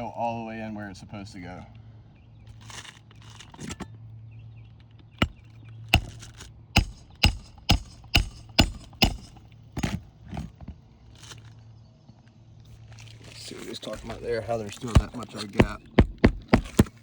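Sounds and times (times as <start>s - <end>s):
hammer striking nail: 5.2s - 10.0s, 14.8s - 17.0s.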